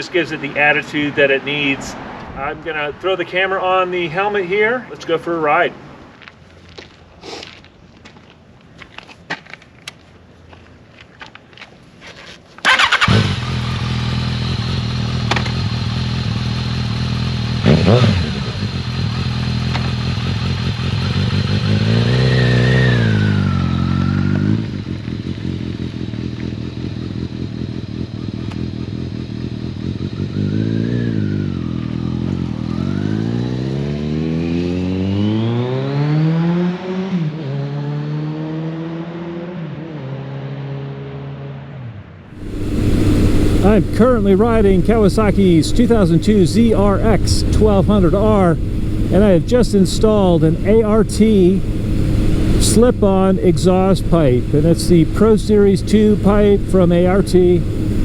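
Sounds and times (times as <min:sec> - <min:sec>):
motorcycle engine revving: 0:12.6 - 0:40.9, 0:42.3 - 0:58.0.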